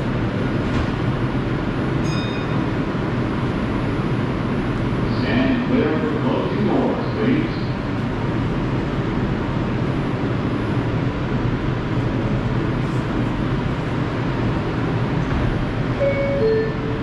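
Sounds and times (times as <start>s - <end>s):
subway train rumbling: 0.0s - 17.0s
short tones: 16.0s - 17.0s.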